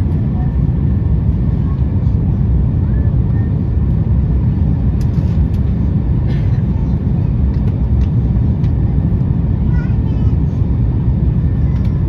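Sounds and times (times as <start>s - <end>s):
airplane cabin rumble: 0.0s - 12.0s.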